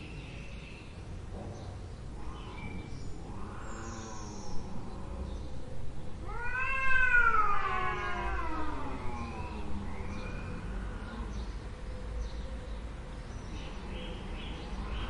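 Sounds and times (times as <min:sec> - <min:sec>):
cat meowing: 0:06.2 - 0:09.7.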